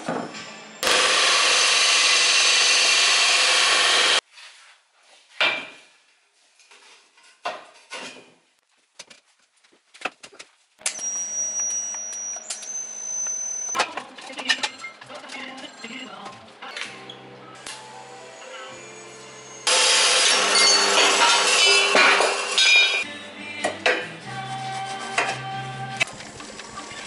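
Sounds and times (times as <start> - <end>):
band saw cutting steel: 0.4 - 4.2, 17.8 - 23.0
high-pitched whine: 10.8 - 13.8, 17.4 - 21.7.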